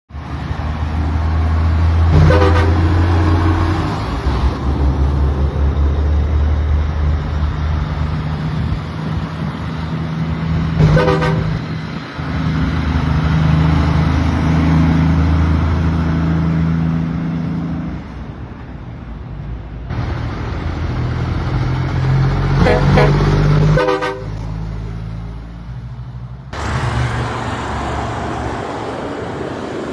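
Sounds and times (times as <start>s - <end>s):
truck engine drone: 0.1s - 29.9s
truck horn blasts: 2.1s - 3.5s, 10.8s - 11.7s, 22.5s - 24.6s.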